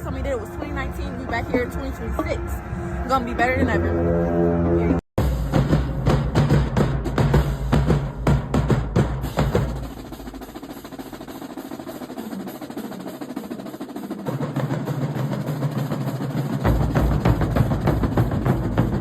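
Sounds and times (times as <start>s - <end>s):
marching drumline: 5.2s - 19.0s.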